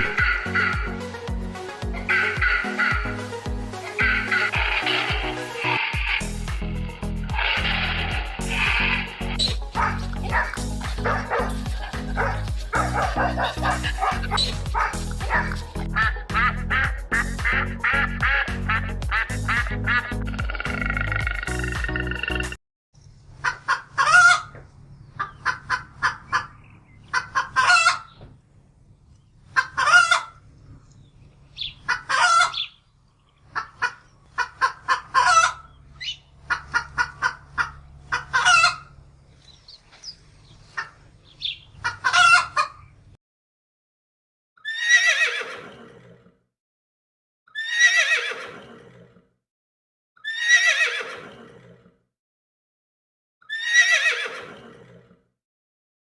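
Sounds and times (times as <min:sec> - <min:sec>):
horse whinnying: 0:00.0 - 0:01.0, 0:03.8 - 0:10.1, 0:44.6 - 0:46.2, 0:47.5 - 0:49.2, 0:50.2 - 0:51.9, 0:53.4 - 0:55.0
chickens clucking: 0:02.0 - 0:06.2, 0:25.2 - 0:28.2, 0:31.6 - 0:32.7, 0:33.5 - 0:39.0, 0:40.7 - 0:42.8.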